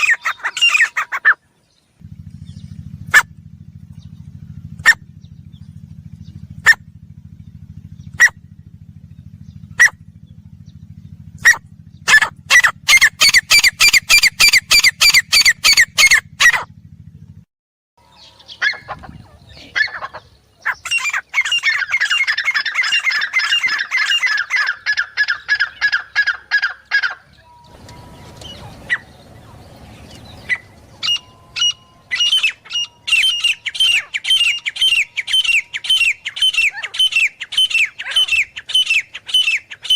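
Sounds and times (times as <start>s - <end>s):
francolin calling: 0.0s - 1.8s, 9.2s - 16.6s, 18.0s - 39.9s
low steady hum: 0.0s - 17.4s, 18.0s - 39.9s.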